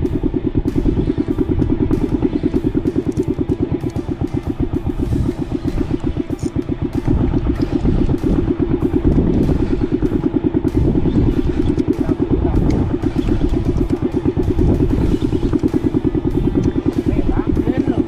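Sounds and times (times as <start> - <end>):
boat engine pulsing: 0.0 - 18.0.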